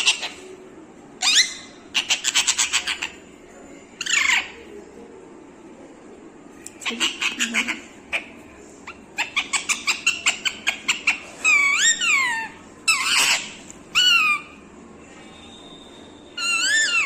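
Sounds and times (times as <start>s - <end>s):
parrot chirping and screeching: 0.0s - 0.5s, 1.2s - 3.3s, 4.0s - 4.7s, 6.8s - 14.6s, 16.4s - 17.0s.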